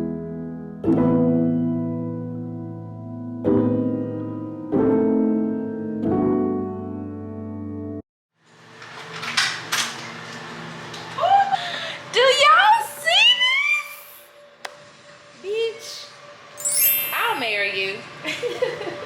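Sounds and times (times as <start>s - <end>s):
slow piano chords: 0.0s - 8.0s.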